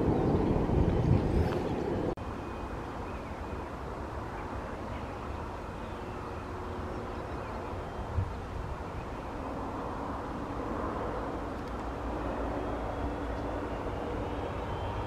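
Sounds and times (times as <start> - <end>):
distant aircraft engines rumbling: 0.0 - 15.0
jet engine rumble: 0.0 - 15.0.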